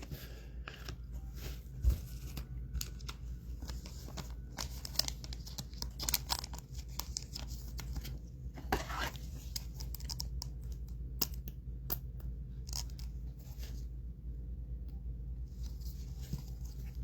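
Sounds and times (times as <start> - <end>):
cards clicking and rustling: 2.1 - 13.2
wrapper crinkling and tearing: 2.7 - 7.7.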